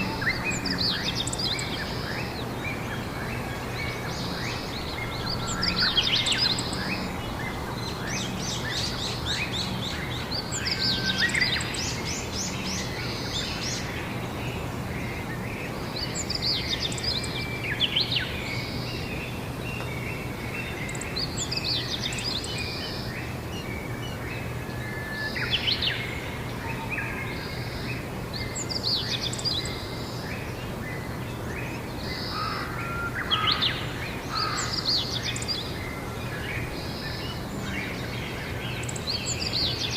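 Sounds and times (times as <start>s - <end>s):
background hiss: 0.0s - 39.9s
songbirds chirping and trilling: 0.0s - 39.9s.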